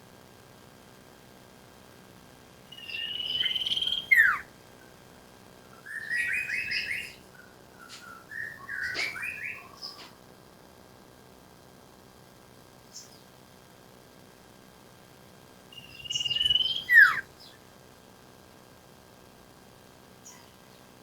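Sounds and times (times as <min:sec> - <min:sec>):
stuttering bird chirps: 0:02.7 - 0:04.4, 0:05.8 - 0:10.1, 0:15.8 - 0:17.6
bird trill and whistle: 0:02.7 - 0:04.5, 0:05.8 - 0:10.1, 0:15.8 - 0:17.6.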